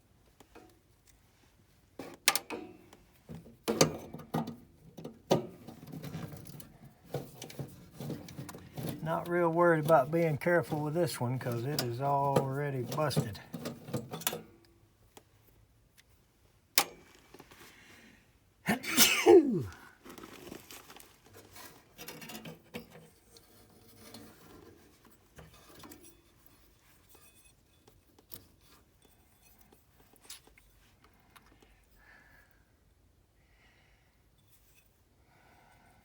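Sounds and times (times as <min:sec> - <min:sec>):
person's sudden vocal burst: 0:18.7 - 0:19.8.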